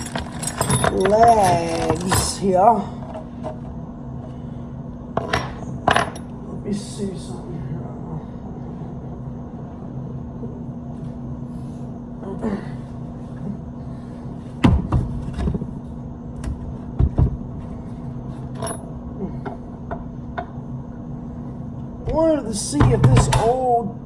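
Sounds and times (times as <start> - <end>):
tools knocking and clunking: 0.0 - 3.7, 16.4 - 17.4, 22.0 - 23.6
steady low hum: 0.0 - 24.0.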